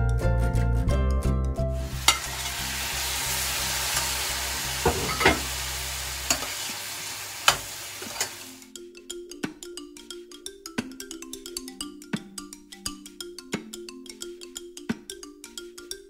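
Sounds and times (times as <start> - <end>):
shrimp sizzling in a pan: 1.8 - 8.6
metal utensil clinking on pan: 2.0 - 6.7, 7.4 - 8.5.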